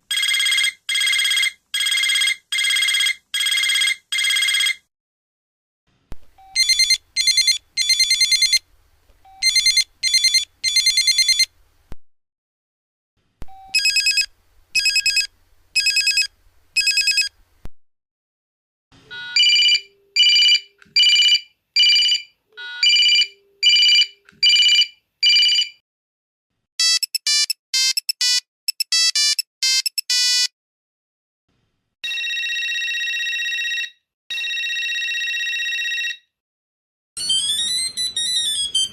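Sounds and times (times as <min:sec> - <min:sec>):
mobile phone ringtones: 0:00.1 - 0:04.8, 0:06.4 - 0:08.6, 0:09.3 - 0:11.5, 0:13.5 - 0:17.4, 0:19.1 - 0:25.8, 0:26.8 - 0:30.5, 0:32.0 - 0:36.3, 0:37.2 - 0:38.9.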